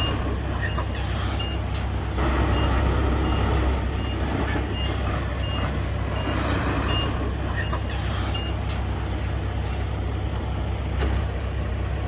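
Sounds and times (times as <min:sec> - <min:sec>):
reversing alarm beeping: 0:00.0 - 0:08.7
diesel engine running: 0:00.0 - 0:12.0.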